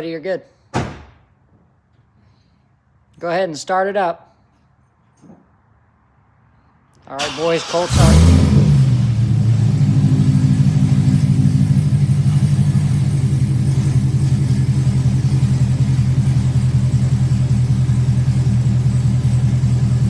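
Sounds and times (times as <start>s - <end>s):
car engine idling: 7.2s - 20.0s.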